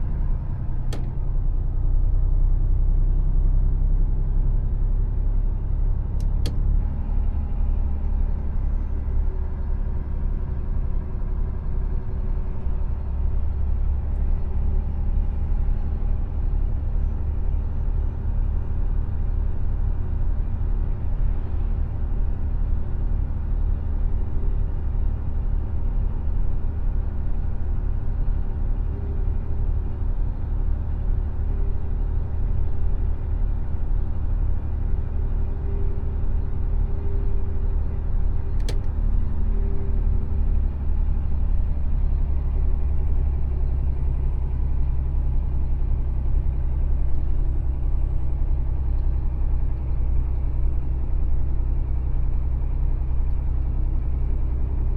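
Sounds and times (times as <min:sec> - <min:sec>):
truck engine and tyres rumbling: 0:00.0 - 0:54.9
short clicks: 0:38.5 - 0:39.0.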